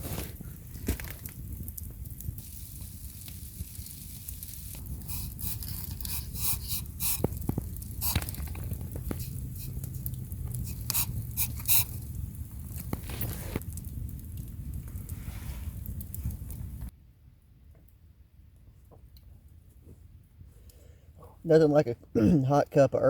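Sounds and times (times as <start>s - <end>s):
sharp crackles and clicks: 0.0s - 17.0s
wind rumbling: 0.0s - 17.0s.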